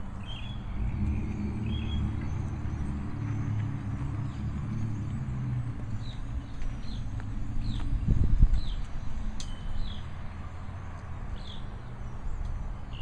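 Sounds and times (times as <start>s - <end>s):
vehicle engine running: 0.0s - 11.2s
bird chirps: 0.2s - 3.6s.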